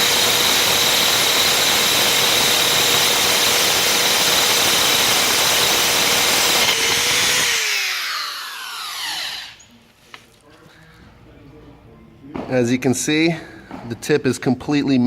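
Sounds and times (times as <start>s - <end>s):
drill bit grinding porcelain: 0.0s - 9.6s
drill motor winding down: 0.0s - 9.7s.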